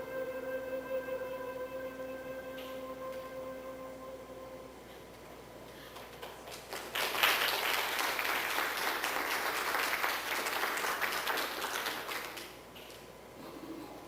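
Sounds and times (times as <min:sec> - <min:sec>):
audience clapping: 0:05.8 - 0:12.6.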